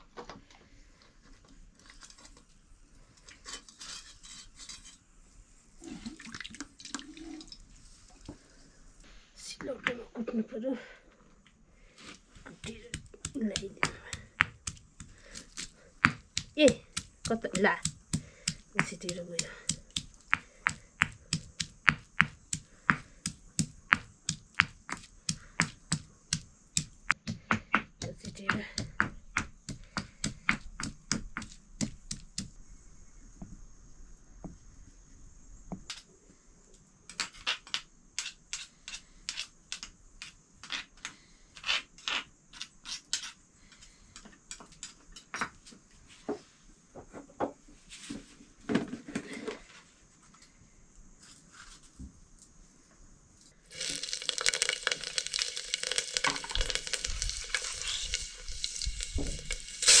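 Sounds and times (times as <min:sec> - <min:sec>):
food sizzling in hot oil: 0:53.7 - 1:00.0.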